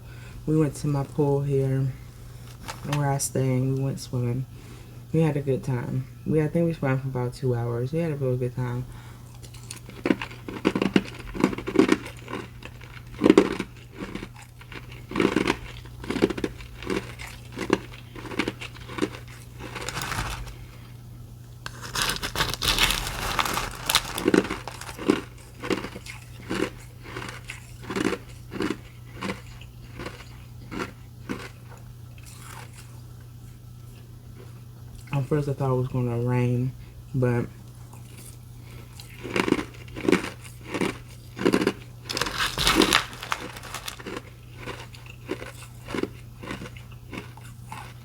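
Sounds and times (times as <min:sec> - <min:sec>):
chewing ice crunching: 0:09.3 - 0:20.8, 0:21.7 - 0:32.9, 0:37.9 - 0:48.0.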